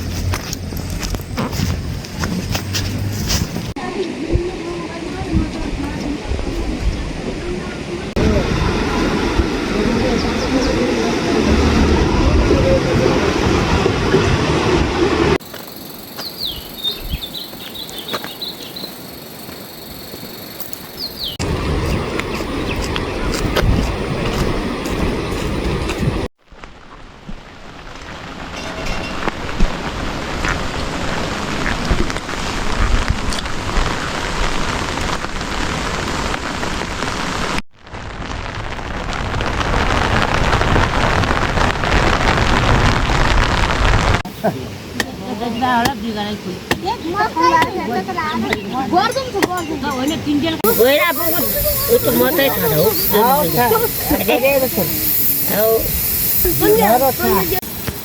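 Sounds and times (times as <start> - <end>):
insects droning: 0.0 - 5.0, 15.3 - 26.3, 44.3 - 58.0
rushing water: 0.0 - 58.0
loud rushing noise: 8.1 - 15.4
small birds chirping: 15.5 - 24.4, 45.4 - 58.0.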